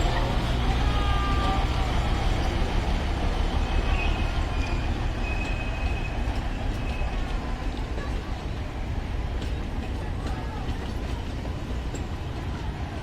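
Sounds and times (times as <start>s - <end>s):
train rumbling: 0.0s - 13.0s
train wheels squealing: 0.8s - 7.8s.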